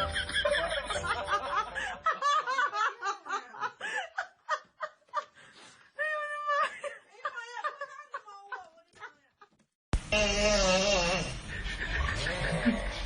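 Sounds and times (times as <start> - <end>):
snickering laughter: 11.1 - 13.0.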